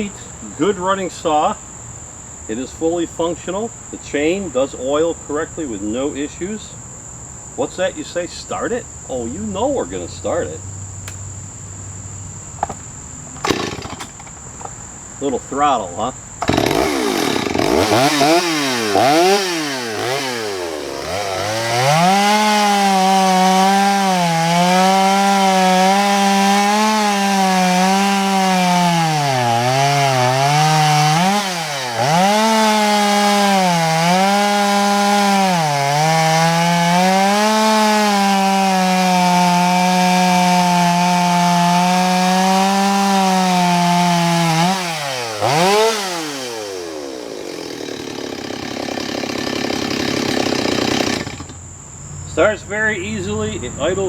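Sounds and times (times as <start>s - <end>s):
chainsaw revving: 13.4s - 14.4s, 16.4s - 51.6s.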